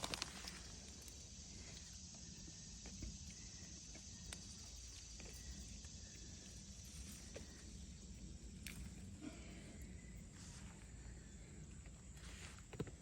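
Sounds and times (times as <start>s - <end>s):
plants rustling and clicking: 0.0s - 1.2s
insects chirping: 0.0s - 13.0s.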